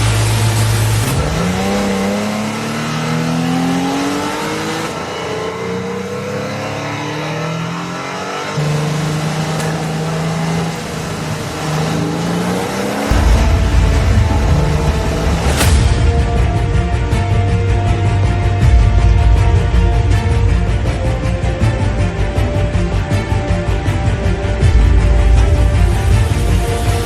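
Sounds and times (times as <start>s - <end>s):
car engine accelerating hard: 0.0s - 16.1s.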